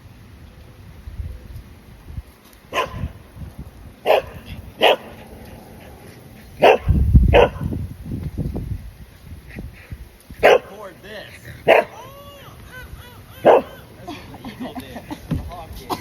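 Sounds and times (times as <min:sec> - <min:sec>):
dog barking: 0:02.7 - 0:03.1, 0:04.0 - 0:05.2, 0:06.6 - 0:07.7, 0:10.4 - 0:10.8, 0:11.6 - 0:12.0, 0:13.4 - 0:13.8.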